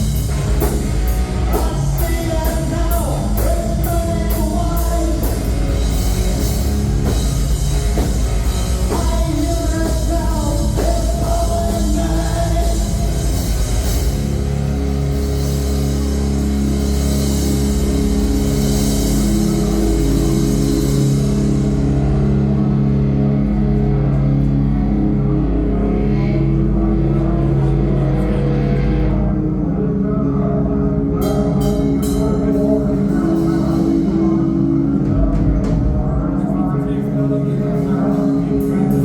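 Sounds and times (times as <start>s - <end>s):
drums and cymbals: 0.0s - 22.6s, 31.2s - 39.0s
distorted electric guitars: 0.0s - 39.0s
person singing: 1.4s - 6.1s, 8.7s - 14.1s, 25.4s - 39.0s.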